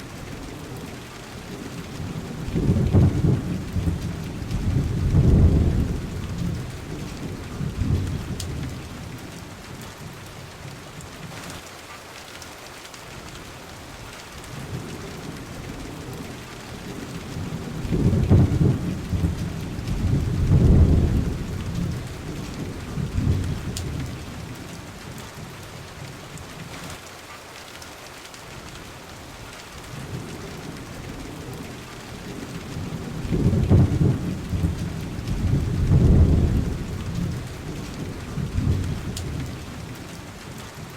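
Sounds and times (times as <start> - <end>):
steady rain falling: 0.0 - 40.9
rolling thunder: 2.0 - 9.2, 17.2 - 24.5, 32.2 - 40.0.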